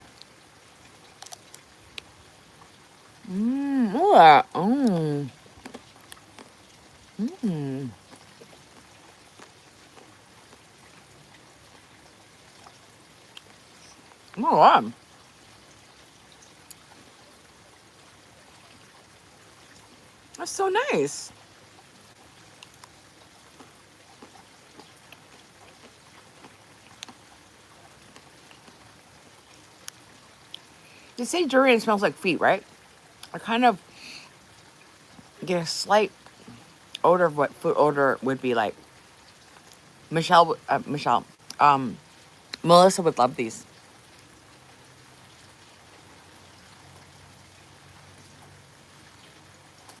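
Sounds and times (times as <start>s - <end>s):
faint steady hiss: 0.0s - 50.0s
chewing clicks and smacks: 1.2s - 2.1s, 22.6s - 27.3s.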